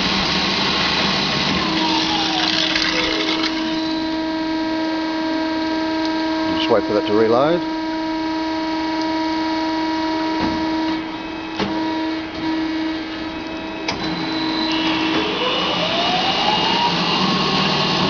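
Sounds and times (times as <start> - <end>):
bandsaw machine hum: 0.0 - 10.2
machine whine rising in pitch: 0.1 - 18.0.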